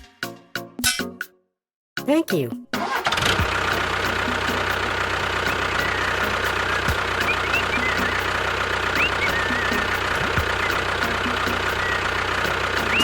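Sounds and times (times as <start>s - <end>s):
tractor engine idling: 2.8s - 13.0s
short high chirps: 5.5s - 8.4s, 9.0s - 12.2s.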